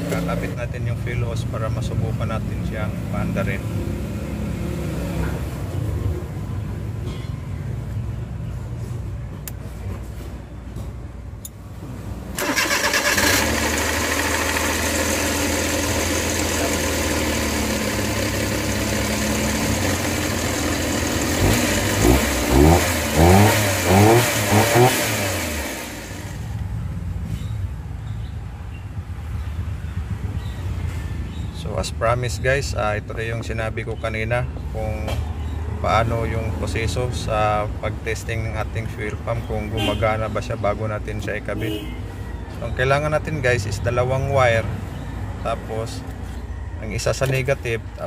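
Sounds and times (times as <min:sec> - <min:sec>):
car engine starting and revving: 0:00.0 - 0:00.6, 0:12.3 - 0:26.7.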